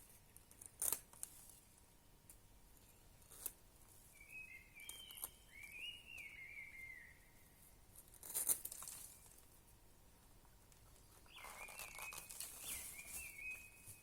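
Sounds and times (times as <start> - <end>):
rustling crackle: 8.0 - 9.5, 10.7 - 14.0.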